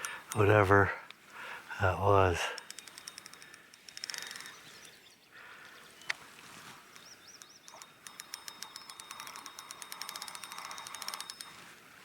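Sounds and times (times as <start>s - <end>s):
fishing reel clicking rapidly: 2.4s - 5.0s, 7.0s - 11.6s
wavering bird chirp: 2.6s - 6.2s, 6.8s - 11.2s.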